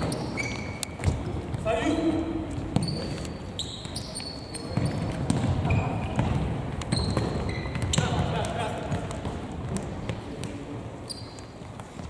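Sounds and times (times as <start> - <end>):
players' voices: 7.8 - 9.5.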